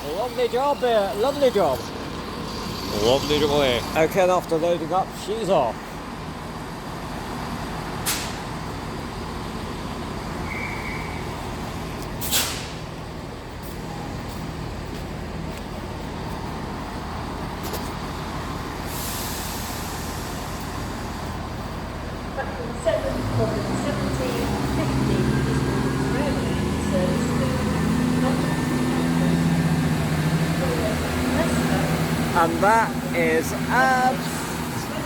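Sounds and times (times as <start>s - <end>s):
diesel train engine running: 0.0s - 35.0s
air hiss: 12.2s - 12.8s, 18.8s - 20.8s.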